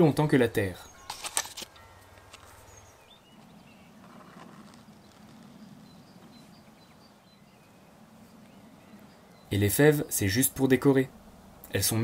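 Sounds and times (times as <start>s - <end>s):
distant birds chirping: 0.0s - 12.0s.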